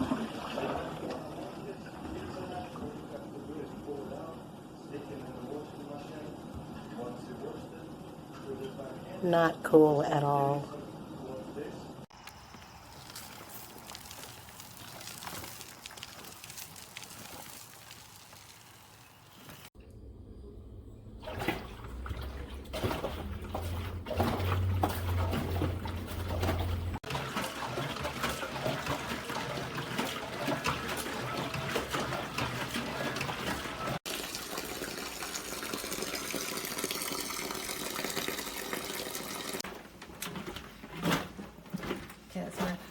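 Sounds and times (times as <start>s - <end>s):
water running and splashing: 12.1s - 19.8s, 21.2s - 39.6s
low hum: 19.8s - 27.0s.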